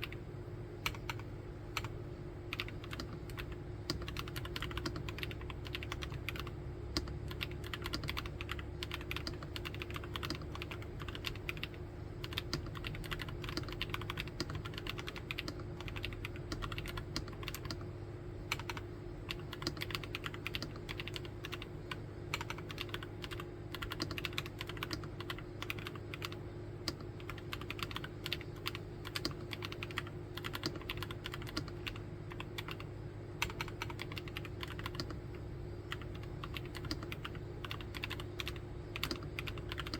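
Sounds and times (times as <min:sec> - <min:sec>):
fast typing on mechanical keyboard: 0:00.8 - 0:01.9, 0:02.5 - 0:17.8, 0:18.5 - 0:21.7, 0:22.3 - 0:35.2, 0:35.9 - 0:39.9.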